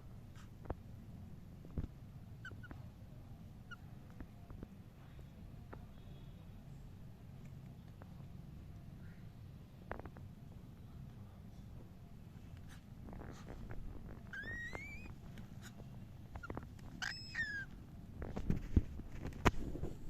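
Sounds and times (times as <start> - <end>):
cockatiel whistled chirps: 14.4 - 15.1, 17.0 - 17.7.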